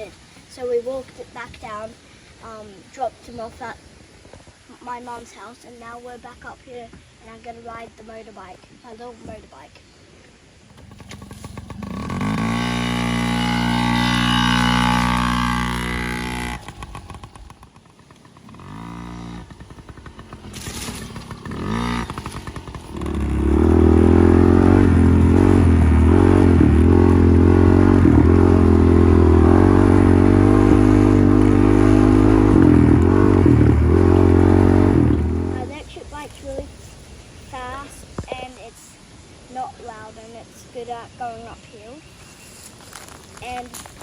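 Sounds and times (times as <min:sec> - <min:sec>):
two-stroke dirt bike engine: 0:10.6 - 0:38.5, 0:42.1 - 0:44.0.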